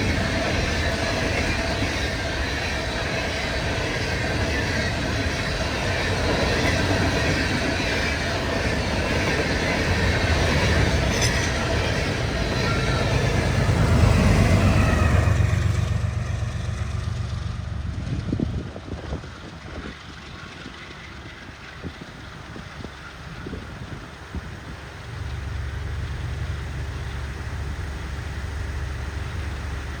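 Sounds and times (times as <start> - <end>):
high wheel squeal: 0.0 - 15.9
train wheels rumbling on rails: 0.0 - 30.0.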